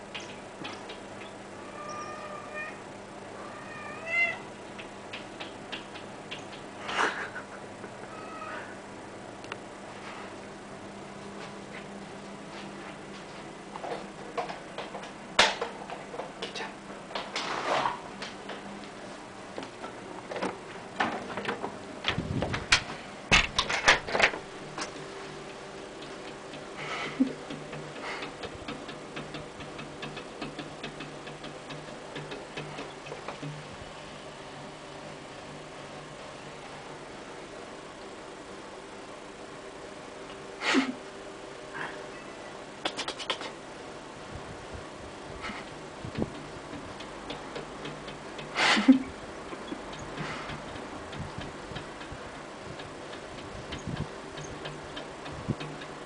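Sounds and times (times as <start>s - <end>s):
scrape: 17.5s - 18.0s
cat pawing and scratching: 23.5s - 33.8s.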